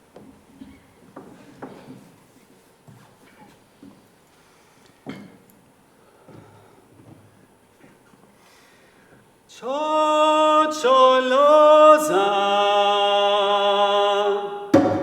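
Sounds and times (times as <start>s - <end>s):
vocal ensemble singing a cappella: 9.5s - 15.0s.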